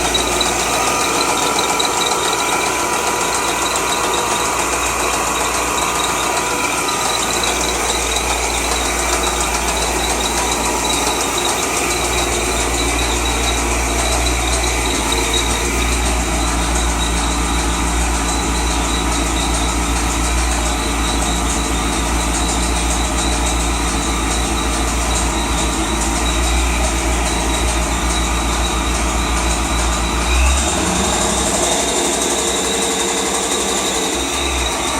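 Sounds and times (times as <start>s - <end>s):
car engine idling with knock: 0.0s - 34.9s.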